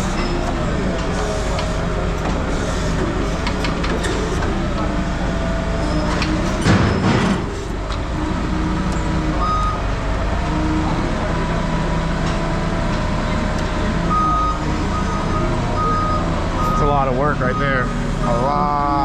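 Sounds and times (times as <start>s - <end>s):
diesel engine running: 0.0s - 19.0s
reversing beep: 9.4s - 9.8s, 14.1s - 18.4s.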